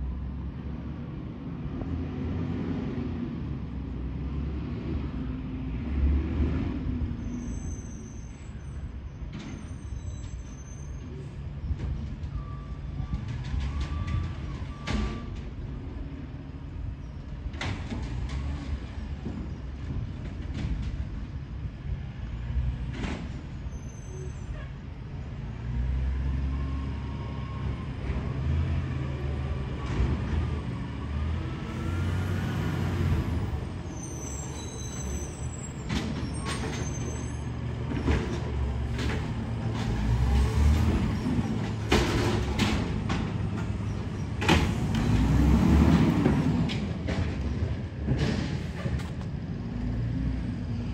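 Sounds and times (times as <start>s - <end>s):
diesel engine rumbling: 0.0s - 50.9s
sharp knocks and clanks: 37.8s - 49.3s.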